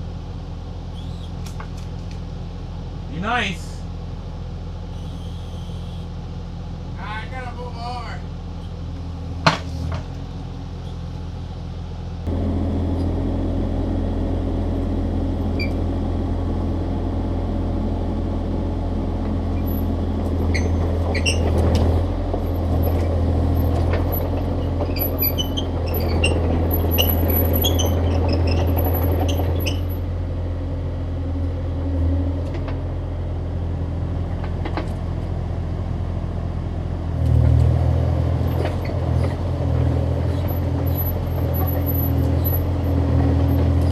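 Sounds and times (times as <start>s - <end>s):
diesel engine running: 0.0s - 43.9s
high machine squeaks: 4.9s - 6.1s, 19.6s - 21.7s, 23.6s - 30.0s.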